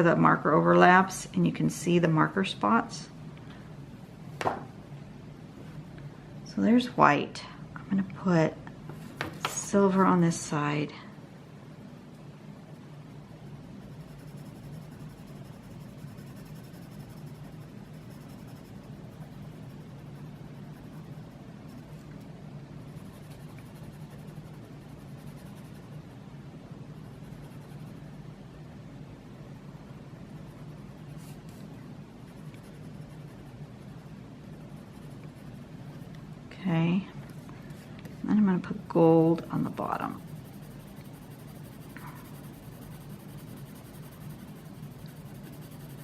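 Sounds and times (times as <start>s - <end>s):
steady low hum: 0.0s - 46.0s
pencil scratching on paper: 13.7s - 22.2s, 22.8s - 25.9s, 27.0s - 28.1s, 32.3s - 36.1s, 38.7s - 46.0s.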